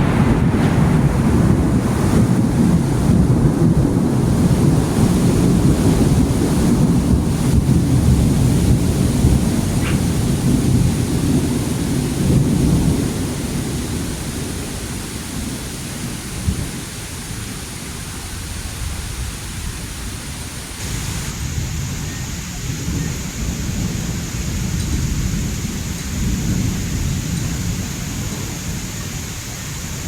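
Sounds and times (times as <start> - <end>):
thunder rumbling: 0.0 - 20.1, 20.8 - 30.0
rain hissing: 0.0 - 30.0.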